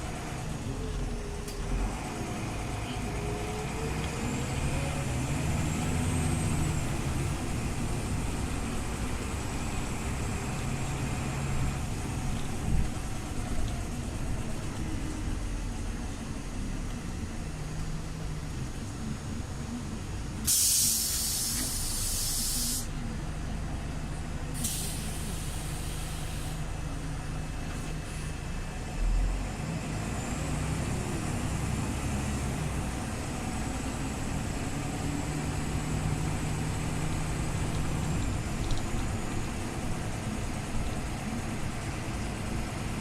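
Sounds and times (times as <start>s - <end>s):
bus engine running: 0.0s - 43.0s
compressed air hissing: 20.4s - 23.0s, 24.6s - 26.6s.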